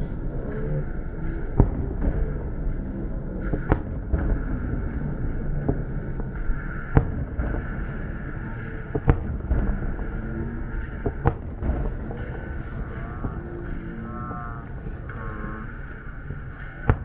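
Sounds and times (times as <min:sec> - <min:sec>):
steady low rumble: 0:00.0 - 0:17.0
faint fireworks cracks: 0:01.5 - 0:17.0
fireworks bangs: 0:01.6 - 0:02.7, 0:03.5 - 0:14.4.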